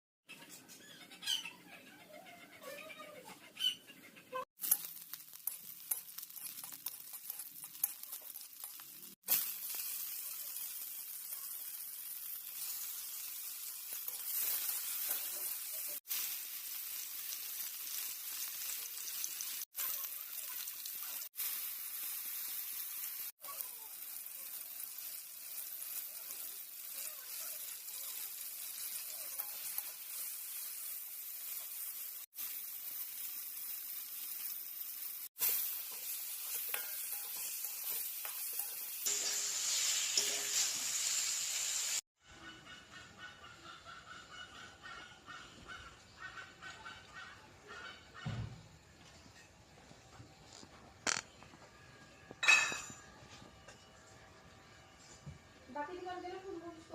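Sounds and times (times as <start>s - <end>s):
eggs sizzling in oil: 4.5s - 42.1s, 50.4s - 51.6s.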